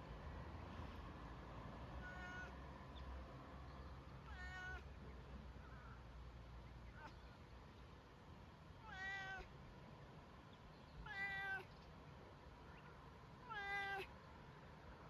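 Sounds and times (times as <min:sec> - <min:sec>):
cat meowing: 0:02.0 - 0:02.6, 0:04.2 - 0:04.9, 0:08.8 - 0:09.5, 0:11.0 - 0:11.7, 0:13.4 - 0:14.1.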